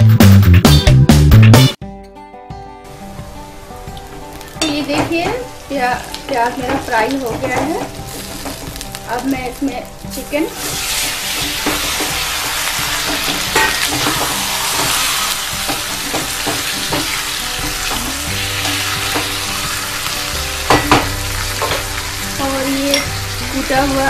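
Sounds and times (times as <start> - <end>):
chicken sizzling in oil: 2.9 - 24.0
spatula knocking and scraping pan: 4.6 - 5.5, 6.2 - 8.9, 10.7 - 19.4.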